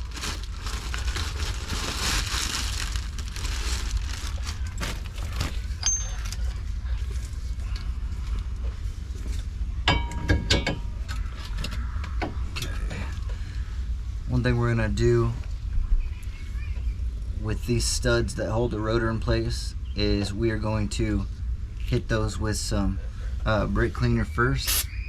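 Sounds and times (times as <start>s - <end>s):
metallic clinks: 5.8s - 6.5s
hiss: 24.6s - 24.9s.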